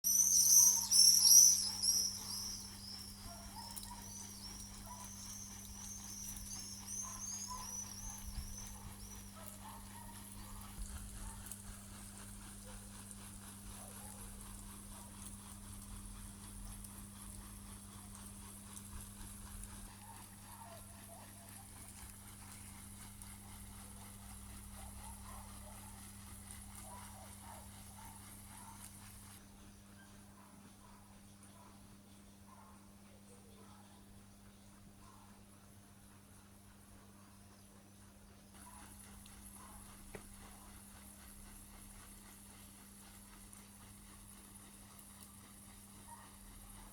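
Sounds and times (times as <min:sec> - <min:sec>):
small birds chirping: 0:00.0 - 0:11.4
steady low hum: 0:00.1 - 0:46.9.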